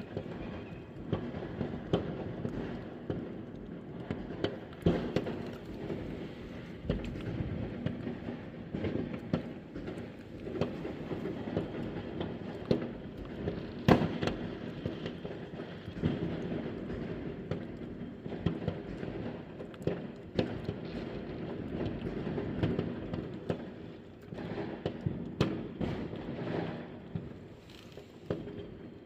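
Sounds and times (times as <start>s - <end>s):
distant fireworks bangs and crackling: 0.0s - 29.0s
close firecracker bangs: 4.1s - 23.7s.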